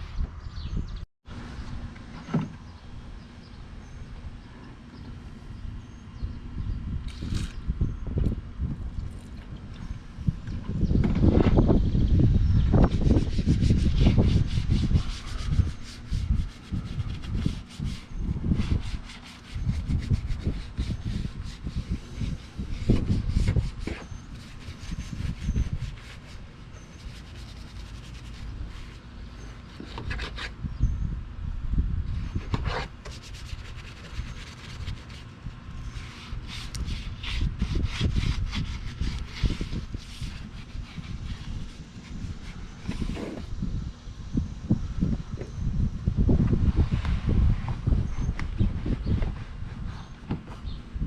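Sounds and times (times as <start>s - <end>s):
low steady rumble: 0.0s - 51.0s
low thuds and rumble: 10.4s - 12.9s
brush scrubbing: 12.9s - 29.0s, 36.0s - 43.5s.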